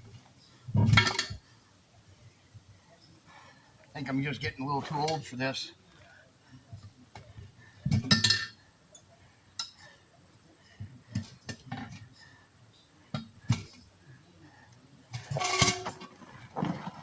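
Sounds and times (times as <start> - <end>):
metal tools clanking on wheel rim: 8.0 - 8.6, 15.2 - 16.2.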